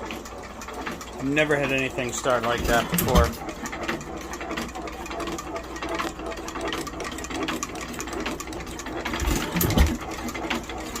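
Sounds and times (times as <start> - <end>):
engine mechanical clatter: 0.0 - 11.0.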